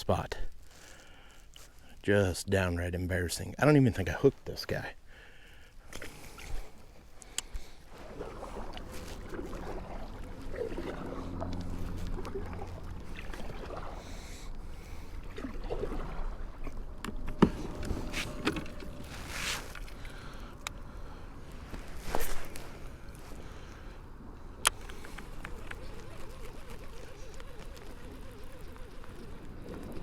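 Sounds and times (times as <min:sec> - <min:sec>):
paddle strokes in water: 0:07.6 - 0:20.4.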